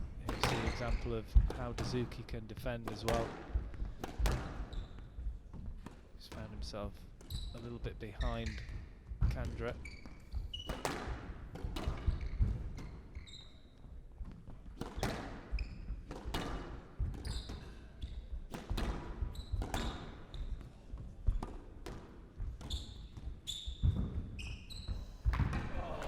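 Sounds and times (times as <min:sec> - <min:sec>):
squash ball struck by rackets: 0:00.2 - 0:00.8, 0:02.9 - 0:06.5, 0:10.5 - 0:13.1, 0:14.2 - 0:17.8, 0:18.4 - 0:24.3, 0:25.2 - 0:26.0
court shoes squeaking: 0:00.2 - 0:02.0, 0:02.9 - 0:26.0.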